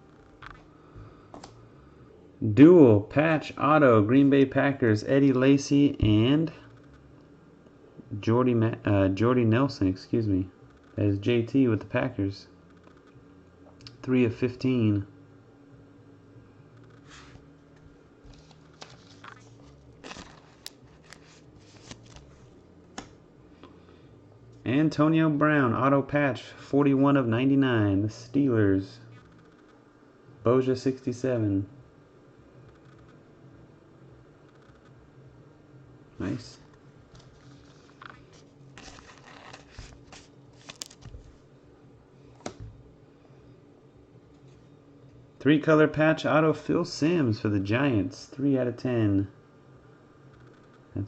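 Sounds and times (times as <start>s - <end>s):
low steady hum: 0.0s - 51.0s
trading cards clicking and rustling: 16.8s - 23.2s, 37.1s - 41.4s.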